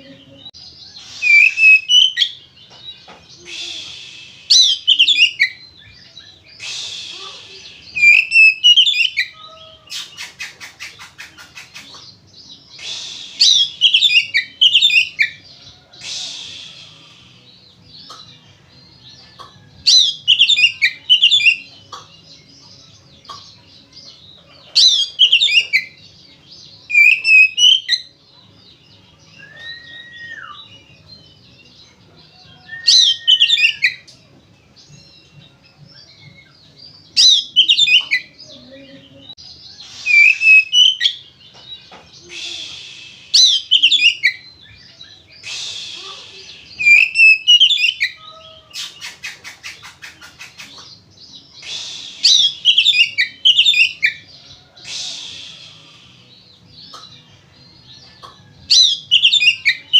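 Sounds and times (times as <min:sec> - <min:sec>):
songbird whistled phrases: 0:00.8 - 0:02.4, 0:03.4 - 0:12.0, 0:12.7 - 0:15.4, 0:26.9 - 0:28.1, 0:29.3 - 0:31.1, 0:32.4 - 0:34.2, 0:37.2 - 0:38.5, 0:39.7 - 0:41.3, 0:42.2 - 0:50.9, 0:51.6 - 0:56.0, 0:58.7 - 0:59.9
bird harsh rasping notes: 0:00.9 - 0:02.6, 0:39.8 - 0:44.5, 0:45.2 - 0:57.3.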